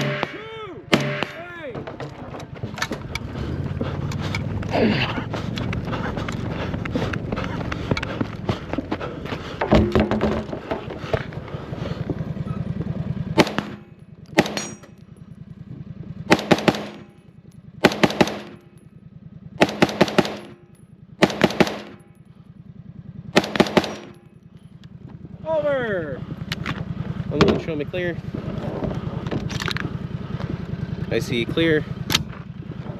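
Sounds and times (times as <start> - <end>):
rifle shots: 0.0 - 1.6, 13.4 - 14.9, 16.3 - 17.2, 17.8 - 18.8, 19.6 - 20.6, 21.2 - 22.1, 23.4 - 24.3.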